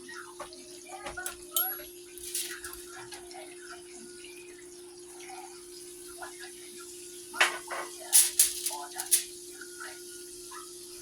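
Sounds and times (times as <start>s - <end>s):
dish clinking: 0.4s - 3.3s, 7.4s - 9.4s
tap water running into sink: 0.4s - 3.4s.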